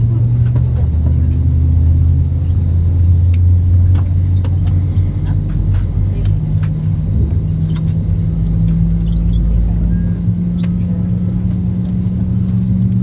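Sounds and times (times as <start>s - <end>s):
airliner cabin engine rumble: 0.0s - 13.0s.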